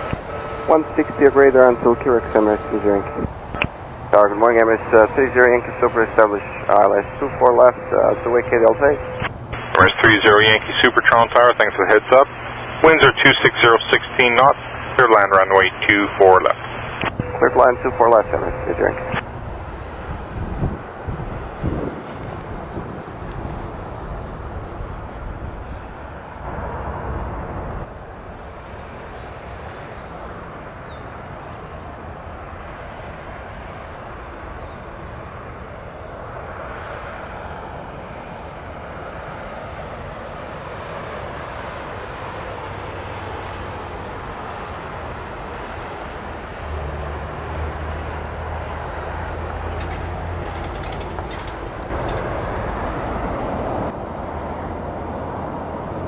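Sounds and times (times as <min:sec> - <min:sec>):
deep drone: 0:00.0 - 0:29.3, 0:46.3 - 0:56.0
jet engines rumbling: 0:00.0 - 0:56.0.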